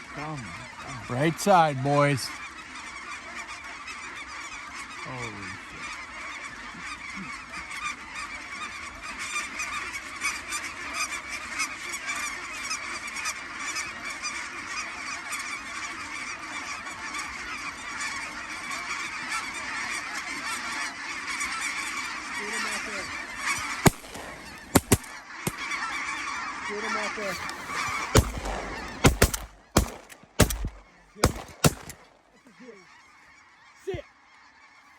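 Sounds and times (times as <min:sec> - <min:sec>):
geese honking: 0:00.0 - 0:34.9
shotgun shots: 0:23.6 - 0:25.7, 0:27.2 - 0:32.3.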